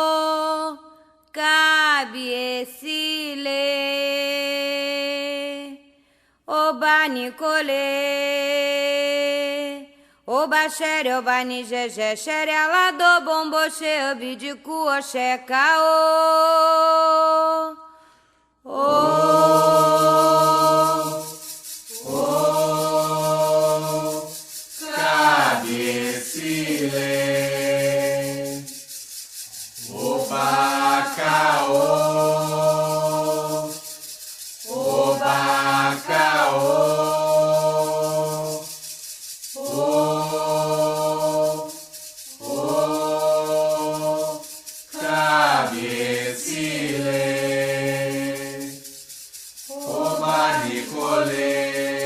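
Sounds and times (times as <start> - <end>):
voices chanting a song: 18.7 - 28.8, 29.6 - 38.8, 39.6 - 48.8, 49.7 - 52.0
hand rattle shaken in a beat: 18.9 - 52.0.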